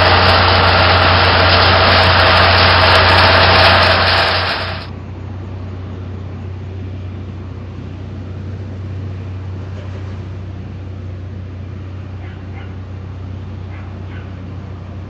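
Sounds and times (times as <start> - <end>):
loud rushing noise: 0.0 - 4.9
harvesting machine engine drone: 0.0 - 15.0.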